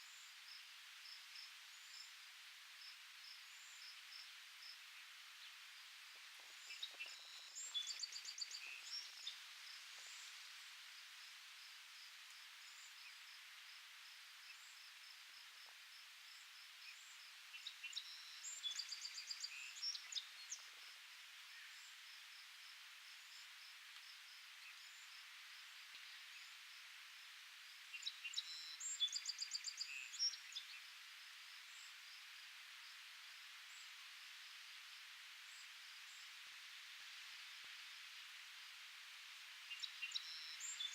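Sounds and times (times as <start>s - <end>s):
faint insect chirps: 0.0s - 40.9s
steady high hiss: 0.0s - 40.9s
songbird trilling song: 6.7s - 9.4s, 39.7s - 40.9s.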